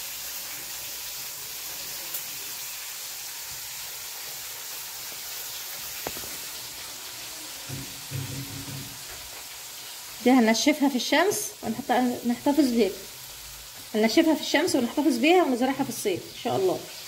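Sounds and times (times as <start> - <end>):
fish sizzling in oil: 0.0 - 17.0.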